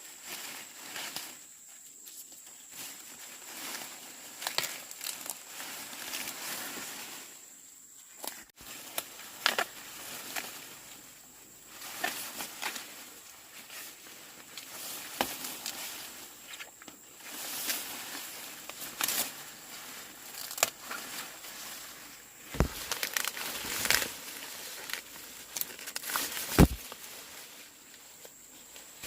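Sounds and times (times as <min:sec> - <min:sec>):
corn leaves rustling: 0:00.0 - 0:29.0
corn stalks snapping: 0:04.4 - 0:05.5, 0:08.2 - 0:10.6, 0:14.5 - 0:15.8, 0:20.2 - 0:21.2, 0:22.4 - 0:27.1.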